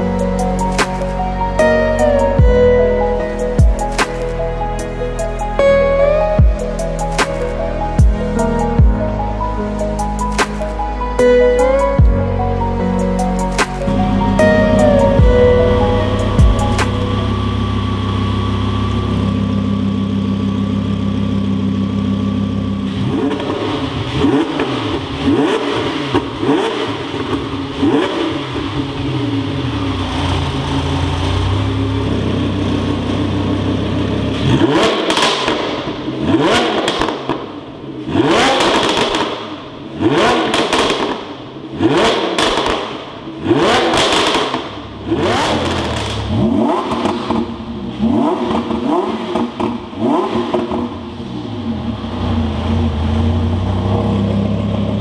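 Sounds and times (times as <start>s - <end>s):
sports car engine revving: 3.3s - 55.0s
engine throttle blips: 13.5s - 55.0s.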